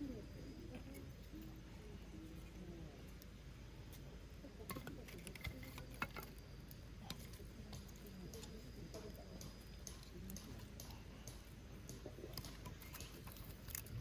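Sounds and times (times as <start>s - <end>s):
steady low hum: 0.0s - 14.0s
small clicks and pops: 4.7s - 14.0s.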